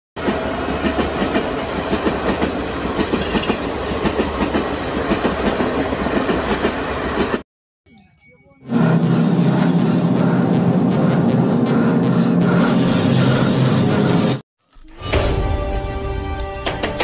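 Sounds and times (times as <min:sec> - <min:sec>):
passenger train rumbling past: 0:00.2 - 0:07.4, 0:08.6 - 0:14.4
wheels clacking over rail joints: 0:00.2 - 0:07.4
loud steady sound: 0:08.7 - 0:14.4.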